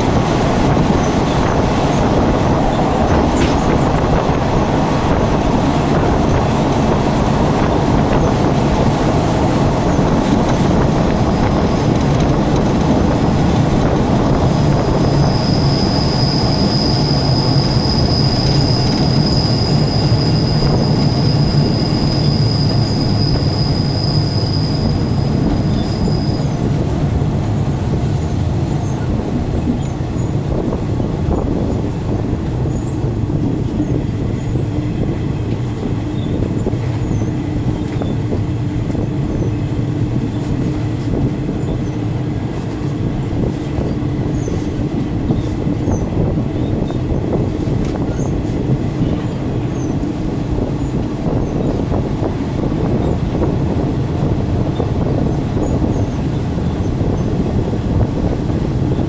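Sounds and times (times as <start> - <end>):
train wheels rumbling: 0.0 - 59.0
high wheel squeal: 0.6 - 12.3, 12.9 - 26.9.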